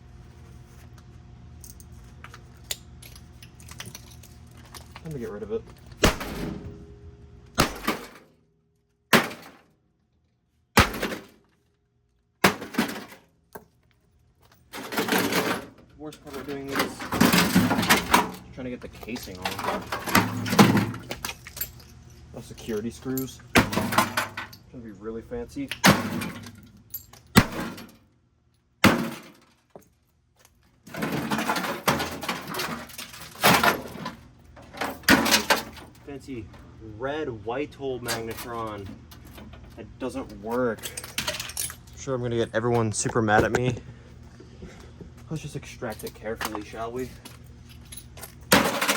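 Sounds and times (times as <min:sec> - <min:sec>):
heavy blows smashing microwave oven: 0:06.0 - 0:08.3, 0:09.1 - 0:09.6, 0:10.7 - 0:11.4, 0:12.4 - 0:13.2, 0:14.8 - 0:18.5, 0:19.4 - 0:21.2, 0:23.5 - 0:24.5, 0:25.8 - 0:26.7, 0:27.3 - 0:28.0, 0:28.8 - 0:29.5, 0:30.9 - 0:35.9, 0:48.4 - 0:48.9
parts crashing and clattering: 0:07.6 - 0:08.3, 0:09.1 - 0:09.7, 0:10.8 - 0:11.6, 0:12.4 - 0:13.3, 0:14.5 - 0:22.0, 0:22.6 - 0:24.6, 0:25.8 - 0:28.0, 0:28.8 - 0:29.6, 0:30.9 - 0:36.0, 0:40.5 - 0:41.9, 0:47.8 - 0:48.9.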